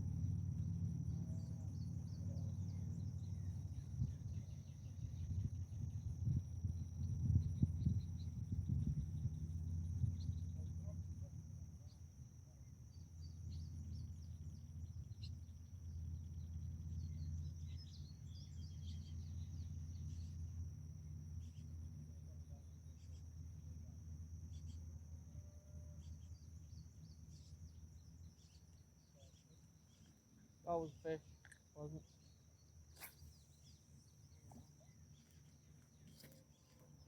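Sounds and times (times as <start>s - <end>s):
low steady rumble: 0.0s - 37.0s
bird chirps: 26.0s - 37.0s.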